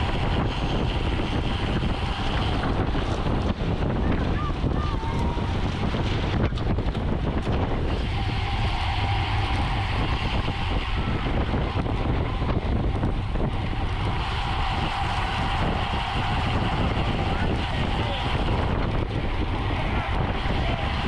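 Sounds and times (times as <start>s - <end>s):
bicycle tyre and road noise: 0.0s - 21.0s
thin steady whine: 0.0s - 21.0s
wind rushing over microphone: 0.0s - 21.0s.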